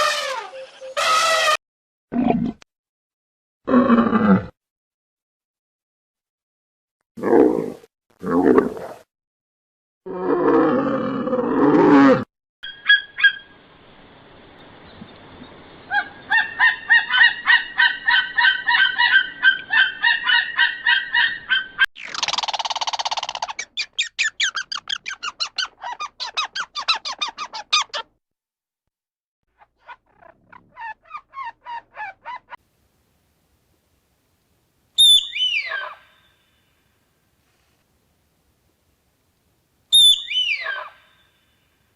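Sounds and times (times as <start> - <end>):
low roar-like animal call: 3.7 - 4.6, 10.0 - 12.3.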